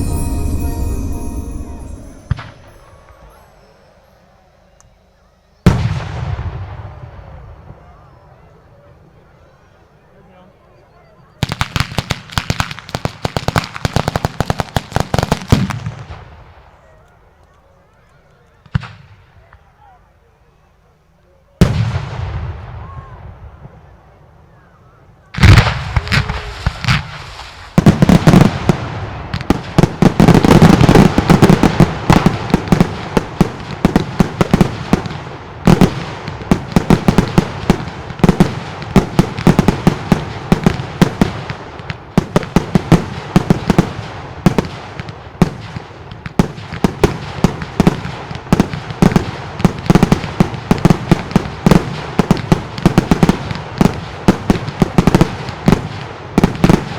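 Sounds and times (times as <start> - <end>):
rapid firework barrage: 25.4 - 45.6.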